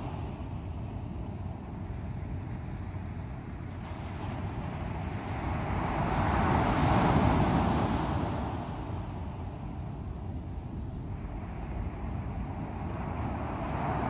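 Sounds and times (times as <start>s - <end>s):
ocean waves breaking: 3.6s - 14.0s.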